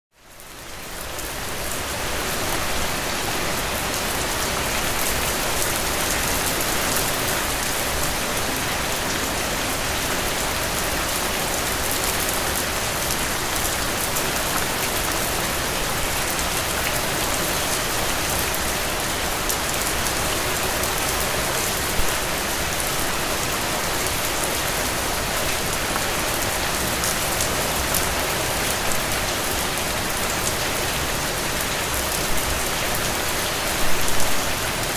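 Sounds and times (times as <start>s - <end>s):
heavy rain on puddles: 0.2s - 34.9s.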